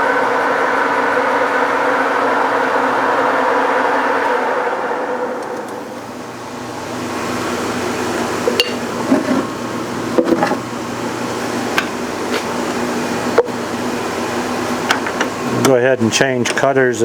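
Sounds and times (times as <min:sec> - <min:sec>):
metal lathe humming: 0:00.0 - 0:10.2.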